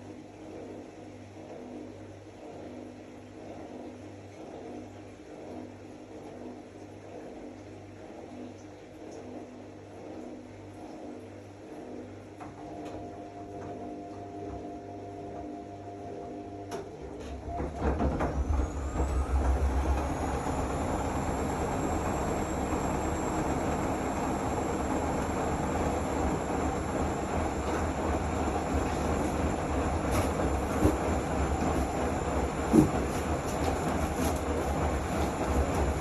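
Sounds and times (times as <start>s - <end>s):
washing machine humming: 0.0s - 36.0s
washing machine spin whine: 0.0s - 36.0s
spinning drum rumble: 17.6s - 36.0s.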